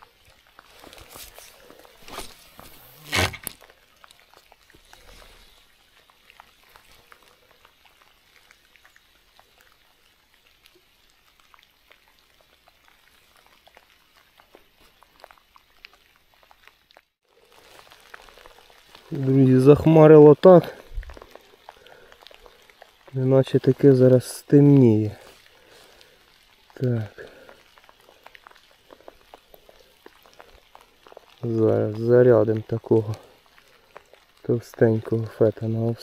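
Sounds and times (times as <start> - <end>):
light rain on leaves: 0.0 - 36.0.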